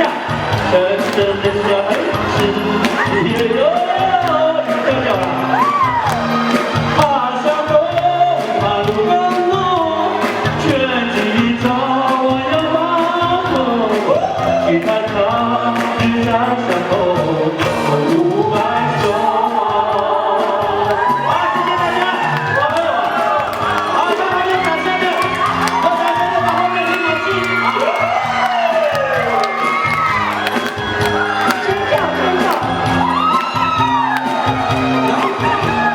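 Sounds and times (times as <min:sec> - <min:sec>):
person singing: 0:00.0 - 0:35.9
repeating bass line: 0:00.0 - 0:35.9.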